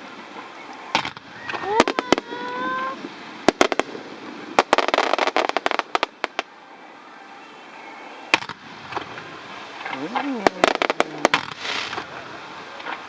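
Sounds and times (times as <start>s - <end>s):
fireworks bangs: 0.9s - 6.5s, 8.3s - 12.2s
fireworks cracks and crackling: 0.9s - 6.5s, 8.3s - 13.0s.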